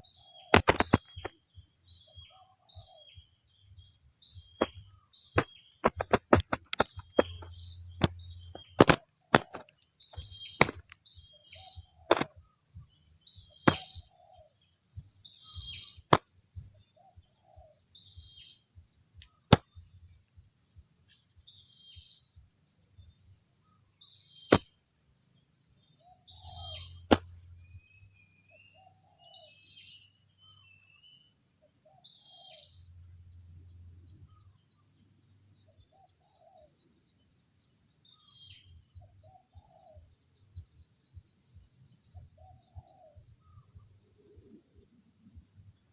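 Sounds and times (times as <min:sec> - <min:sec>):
small bird chirping: 0:00.0 - 0:45.9
sharp clicks: 0:05.4 - 0:09.8.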